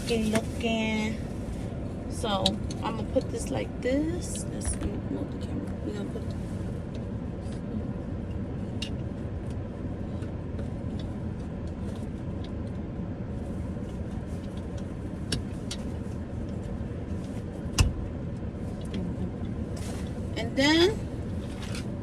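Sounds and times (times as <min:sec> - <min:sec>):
car engine and air conditioning hum: 0:00.0 - 0:22.0.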